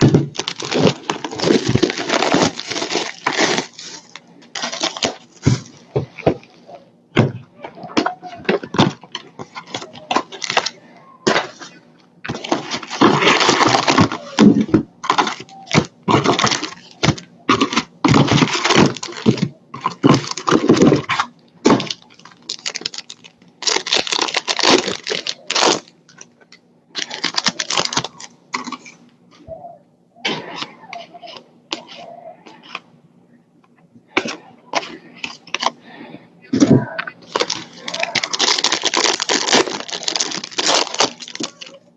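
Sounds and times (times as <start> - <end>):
foil wrappers tearing and crinkling: 0.0 - 5.8, 8.0 - 26.3, 26.9 - 29.0, 36.7 - 41.8.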